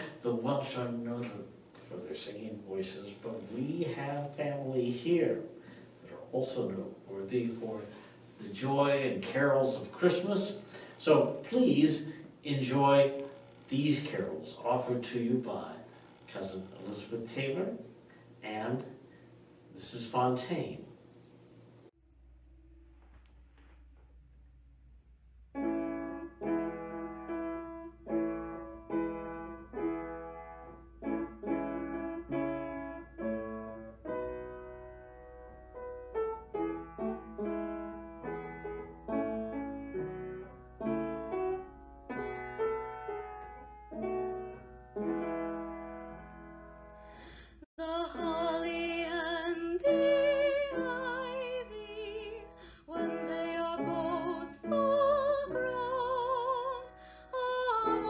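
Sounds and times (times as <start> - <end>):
piano chords: 0.0 - 19.0, 22.1 - 47.4, 48.0 - 58.0
women singing with vibrato: 47.8 - 58.0.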